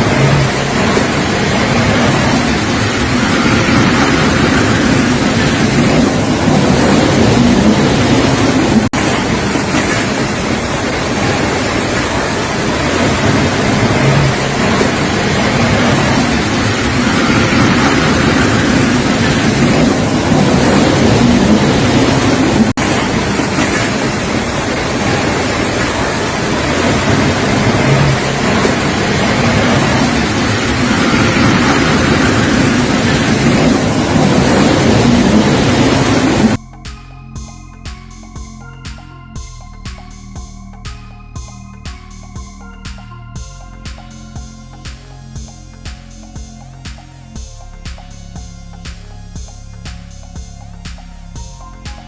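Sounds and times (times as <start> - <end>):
wind and rain on microphone: 0.0 - 36.6.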